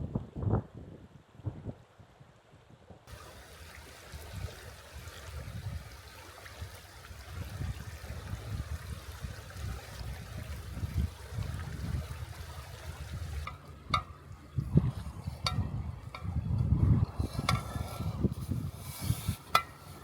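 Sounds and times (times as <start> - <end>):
river water rushing: 3.1 - 13.7.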